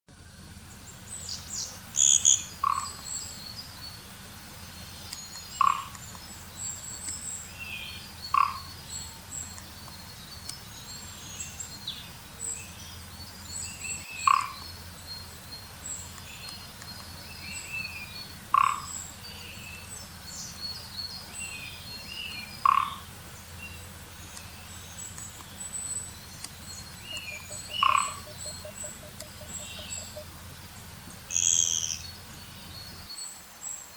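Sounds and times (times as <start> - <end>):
high-pitched bird twittering: 23.7 - 30.3, 31.3 - 32.2.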